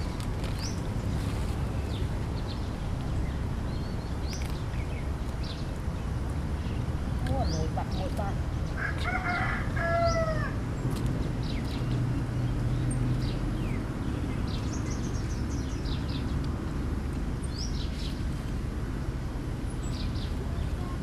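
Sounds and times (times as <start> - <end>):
low outdoor rumble: 0.0 - 21.0
small birds chirping: 0.0 - 21.0
rooster crowing: 8.8 - 10.6.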